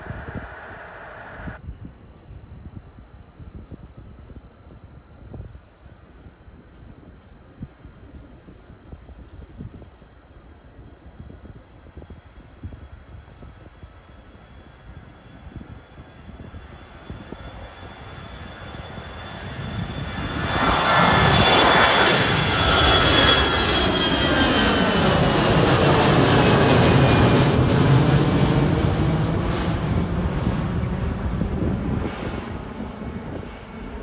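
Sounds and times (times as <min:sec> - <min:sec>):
jet airliner passing: 0:00.0 - 0:01.6, 0:14.0 - 0:34.0
high jet engine whine: 0:00.0 - 0:34.0.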